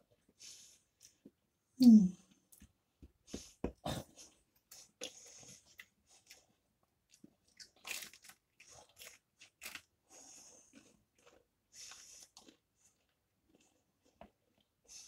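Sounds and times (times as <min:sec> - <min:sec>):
chewing crunchy food: 0:04.0 - 0:15.0.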